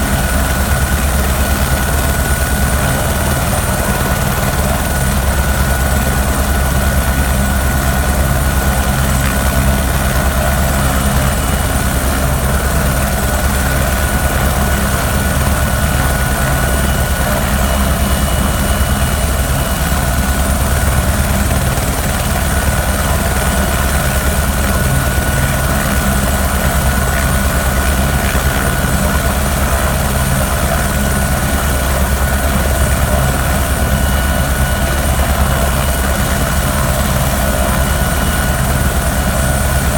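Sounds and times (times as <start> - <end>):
helicopter rotor beat: 0.0 - 39.9.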